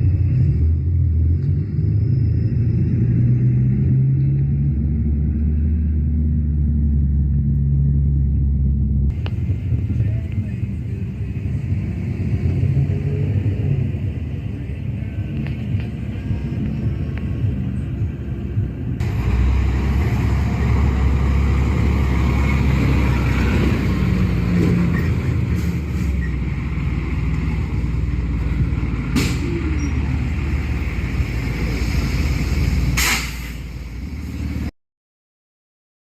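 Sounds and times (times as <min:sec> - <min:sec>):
diesel engine rumbling: 0:00.0 - 0:34.7
short hisses: 0:31.8 - 0:33.7.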